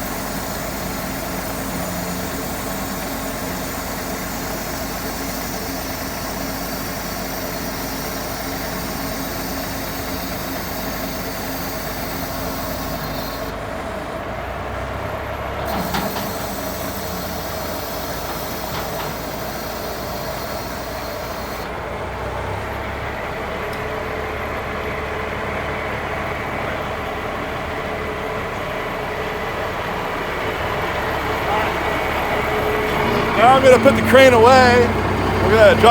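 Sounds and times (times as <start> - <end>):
diesel engine running: 0.0 - 35.9
high hiss: 15.7 - 21.7.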